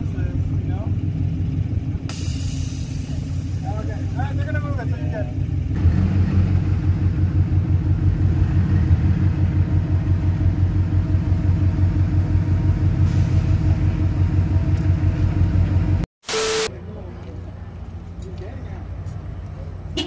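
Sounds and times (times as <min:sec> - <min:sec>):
car engine idling: 0:00.0 - 0:05.8, 0:09.4 - 0:13.0.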